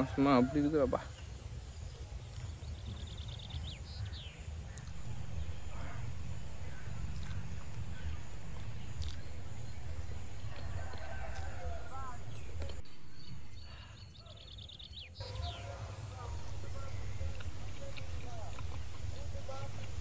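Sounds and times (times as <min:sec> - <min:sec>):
birds chirping: 0:00.0 - 0:20.0
low rumble: 0:04.7 - 0:14.0, 0:15.2 - 0:20.0.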